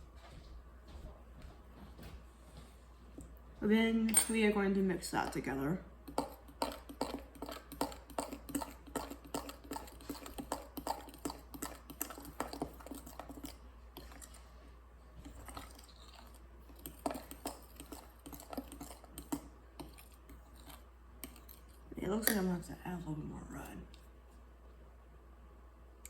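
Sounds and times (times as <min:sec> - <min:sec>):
fork whisking batter in bowl: 0:04.9 - 0:24.0.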